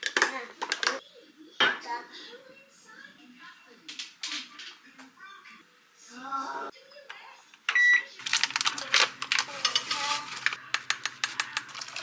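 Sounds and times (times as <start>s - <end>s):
appliance electronic beep: 7.7s - 8.1s
utensils clicking against dishes: 8.3s - 12.0s.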